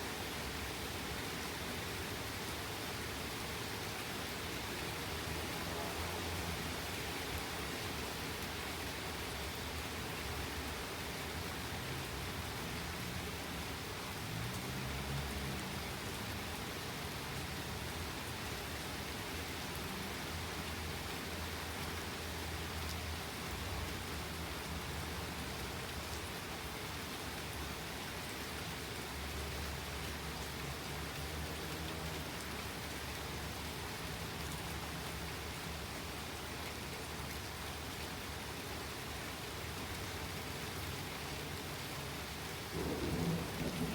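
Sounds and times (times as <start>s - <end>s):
steady rain: 0.0s - 43.9s
thunder rumbling: 42.7s - 43.9s.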